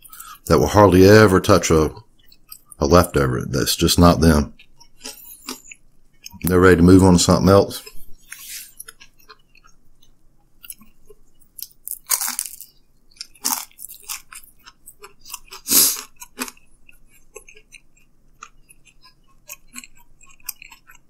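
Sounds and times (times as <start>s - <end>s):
chewing clicks: 2.1s - 2.8s, 7.8s - 21.0s
pizza crust crunching: 10.6s - 21.0s.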